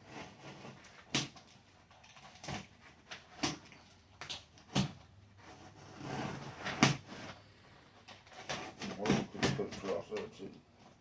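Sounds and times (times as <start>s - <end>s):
knife cutting cardboard box: 4.6s - 7.4s, 8.3s - 10.0s
short scrape: 5.4s - 7.6s.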